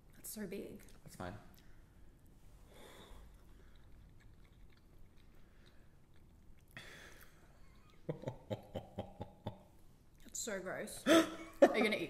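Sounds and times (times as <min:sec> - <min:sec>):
breath: 0:02.6 - 0:03.8, 0:06.8 - 0:07.5
person chewing raw fish: 0:02.9 - 0:08.1.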